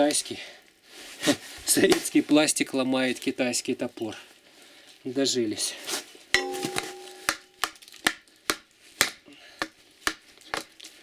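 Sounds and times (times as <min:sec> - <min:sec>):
short metallic ring: 0:06.4 - 0:07.6
axe striking plastic box: 0:06.4 - 0:08.2.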